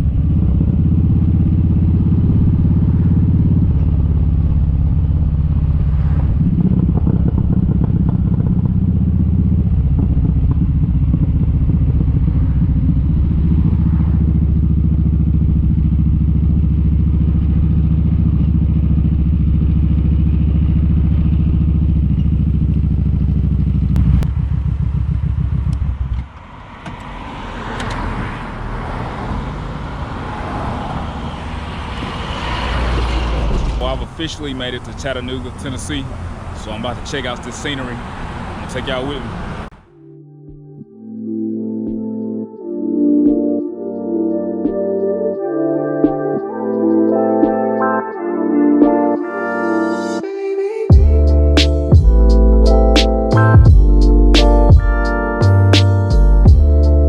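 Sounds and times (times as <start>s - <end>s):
motorcycle engine running: 0.0s - 26.5s, 50.9s - 56.9s
rushing road and traffic noise: 0.0s - 39.9s.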